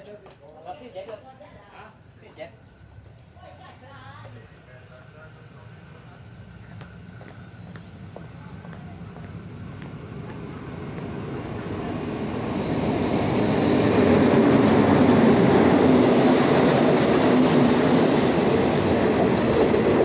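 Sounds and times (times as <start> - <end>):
diesel locomotive passing: 2.8 - 20.0
wheels rumbling on rails: 5.1 - 20.0.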